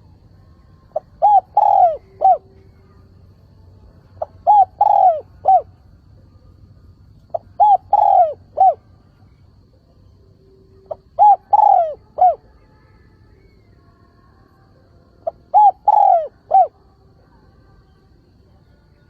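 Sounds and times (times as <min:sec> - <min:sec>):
dove cooing: 0:00.8 - 0:03.1, 0:04.2 - 0:05.8, 0:07.3 - 0:09.0, 0:10.8 - 0:12.5, 0:15.2 - 0:16.8.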